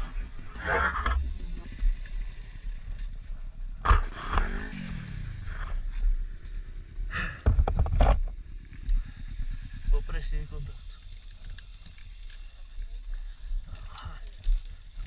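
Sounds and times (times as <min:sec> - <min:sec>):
wind rumble on microphone: 0:03.0 - 0:15.0
motorcycle engine: 0:03.8 - 0:11.9.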